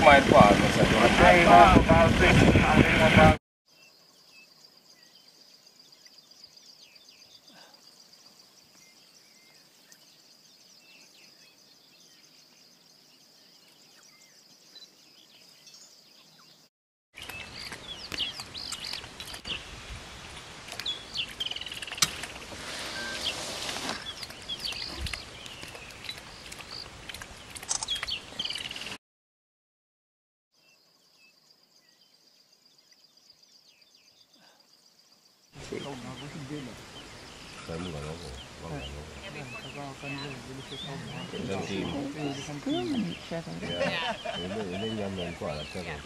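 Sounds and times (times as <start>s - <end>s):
birds chirping and calling: 20.8s - 27.0s, 35.6s - 46.0s.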